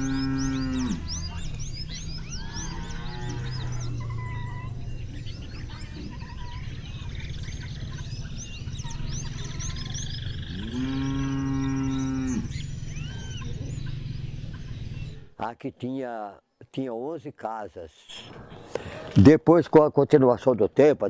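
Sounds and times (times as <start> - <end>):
cattle mooing: 0.0 - 4.8, 9.2 - 14.1
small birds chirping: 0.0 - 15.5.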